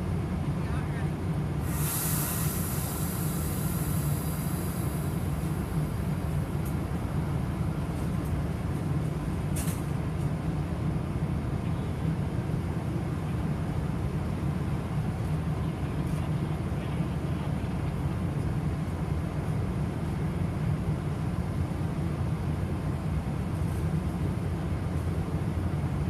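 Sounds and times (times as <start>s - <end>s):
train engine low rumble: 0.0s - 26.0s
air brakes hissing: 1.6s - 7.0s.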